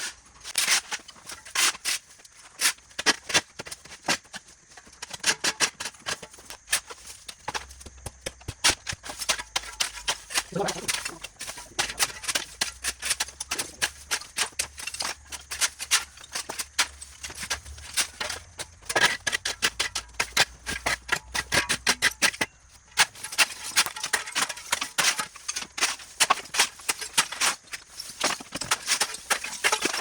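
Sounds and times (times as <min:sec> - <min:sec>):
hand tools scraping debris: 0:00.5 - 0:30.0.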